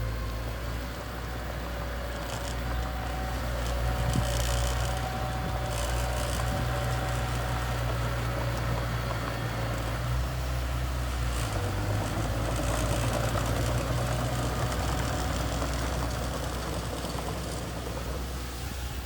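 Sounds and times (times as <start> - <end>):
diesel engine running: 0.0 - 19.0
light rattle: 0.9 - 19.0.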